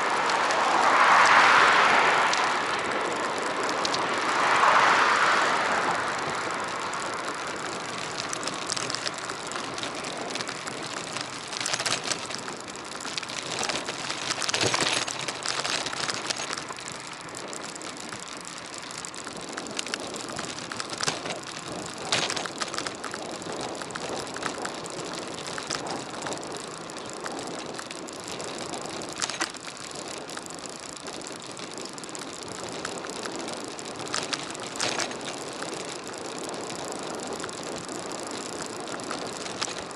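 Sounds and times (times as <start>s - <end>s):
vehicle passing: 0.0s - 22.4s
bike clicks and rattles: 0.0s - 39.9s
tyre and wind noise: 0.0s - 39.9s.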